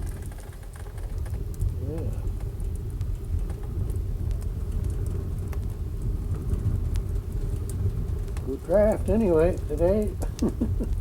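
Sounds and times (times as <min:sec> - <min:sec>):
faint fire crackles: 0:00.0 - 0:11.0
wood stove fire rumbling: 0:00.0 - 0:11.0.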